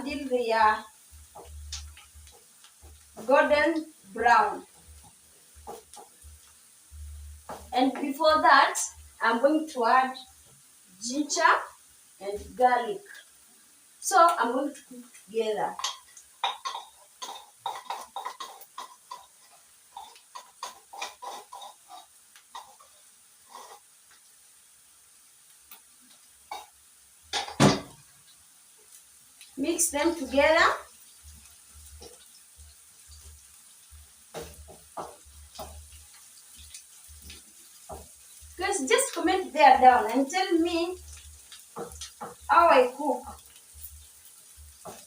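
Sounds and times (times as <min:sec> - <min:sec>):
food sizzling in oil: 0:00.0 - 0:45.0
spoon scraping and knocking pan: 0:01.1 - 0:03.6, 0:04.7 - 0:06.7, 0:07.3 - 0:08.1, 0:15.7 - 0:24.2, 0:29.9 - 0:39.8, 0:40.7 - 0:42.5, 0:43.2 - 0:45.0
spoon scraping cooking pot: 0:15.8 - 0:22.8.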